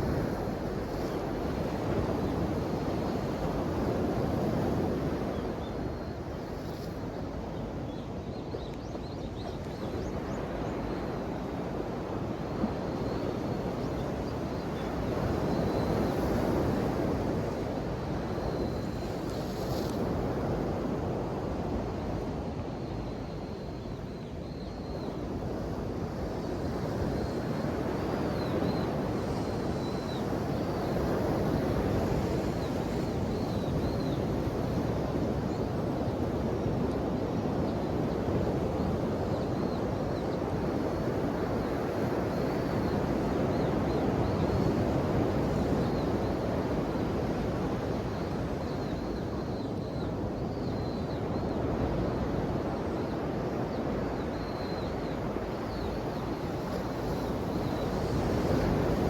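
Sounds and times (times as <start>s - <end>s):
ocean waves washing ashore: 0.0s - 8.3s, 25.1s - 59.0s.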